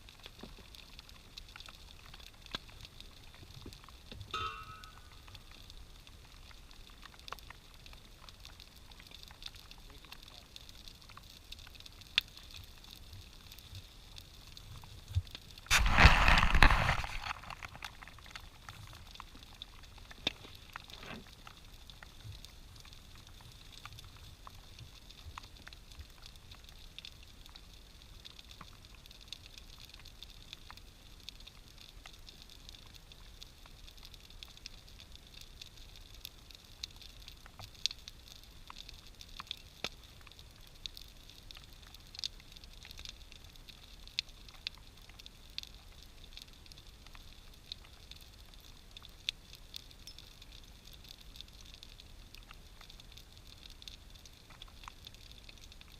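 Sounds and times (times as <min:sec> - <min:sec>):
bonfire crackling: 0:00.0 - 0:55.9
sharp pops of fire: 0:15.6 - 0:18.2.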